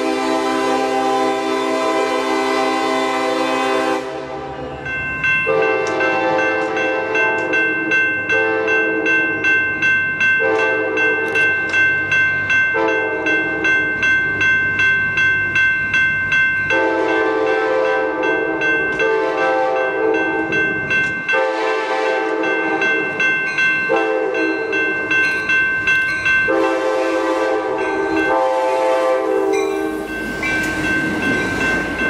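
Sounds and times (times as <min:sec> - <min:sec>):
air horn blasts: 0:00.0 - 0:04.6, 0:21.4 - 0:22.4, 0:26.5 - 0:29.6
locomotive bell ringing: 0:00.0 - 0:32.0.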